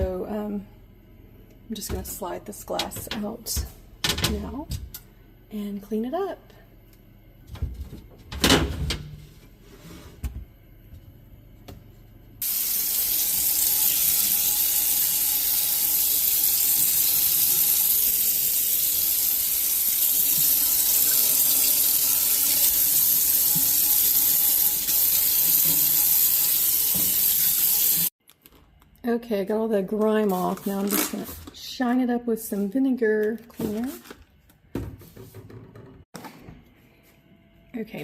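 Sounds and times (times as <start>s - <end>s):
tap water running into sink: 12.4s - 28.1s.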